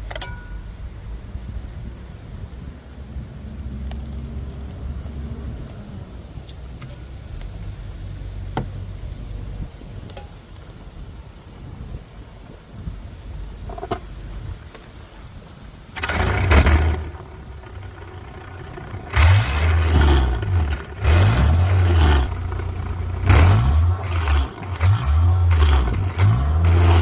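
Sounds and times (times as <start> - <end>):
car engine revving: 16.0 - 27.0.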